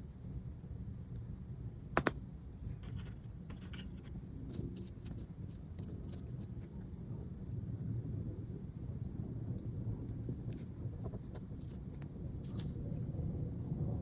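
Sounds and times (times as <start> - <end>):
low background rumble: 0.0 - 14.0
light scratching and small clicks: 2.8 - 7.6, 10.0 - 13.1.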